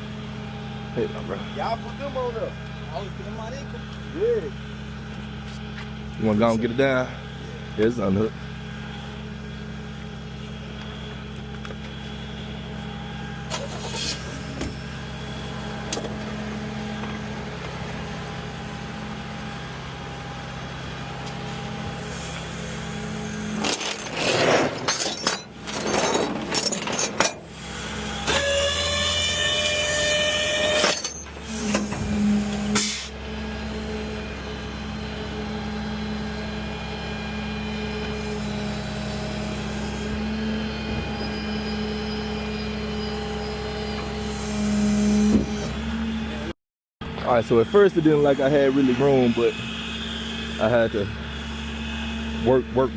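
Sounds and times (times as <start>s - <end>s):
vehicle engine idling: 0.0s - 23.6s
high pitched squeal: 21.5s - 35.6s, 39.3s - 46.3s, 47.3s - 52.9s
loud rough noise: 21.6s - 33.2s.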